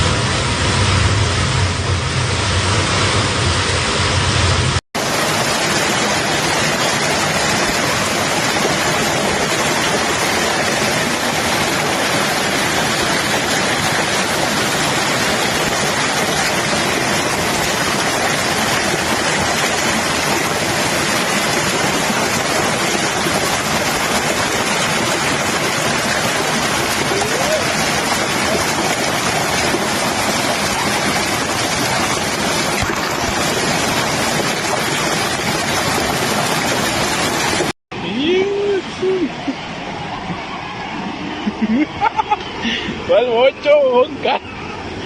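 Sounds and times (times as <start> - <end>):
running water: 5.0 - 38.2
heavy rain pouring: 5.0 - 39.4.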